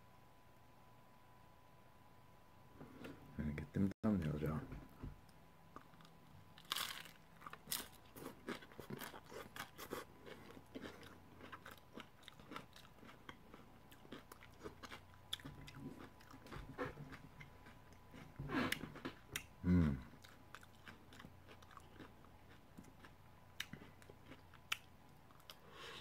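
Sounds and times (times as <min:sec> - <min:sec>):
crunchy chewing: 0:05.7 - 0:26.0
bite into crispy shell: 0:05.8 - 0:12.9.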